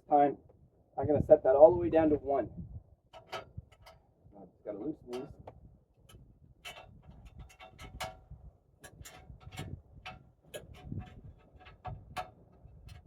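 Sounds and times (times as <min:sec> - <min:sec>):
metal fittings clicking and clinking: 0:06.6 - 0:08.2, 0:08.8 - 0:13.0.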